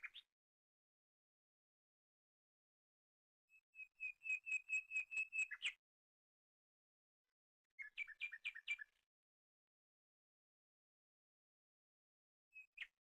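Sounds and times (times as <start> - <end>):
songbird whistling notes: 3.8 - 5.8, 7.8 - 8.9.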